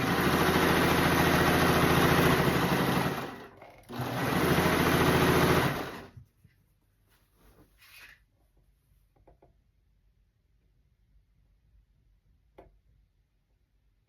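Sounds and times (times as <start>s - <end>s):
sewing machine running: 0.0s - 6.2s.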